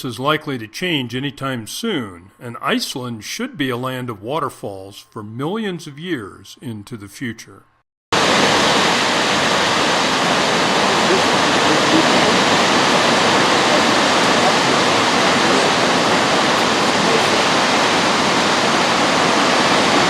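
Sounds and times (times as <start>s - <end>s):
waterfall rushing: 8.2s - 20.0s.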